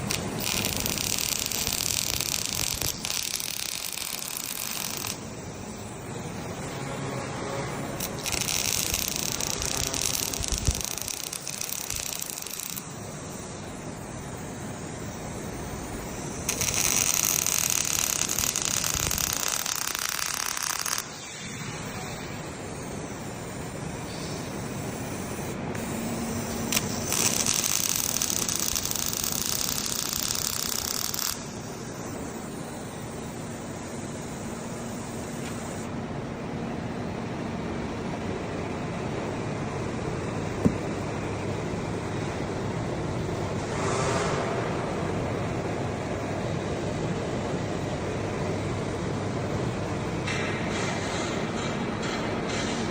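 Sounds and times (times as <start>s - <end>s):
welding arc hissing and crackling: 0.0s - 35.9s.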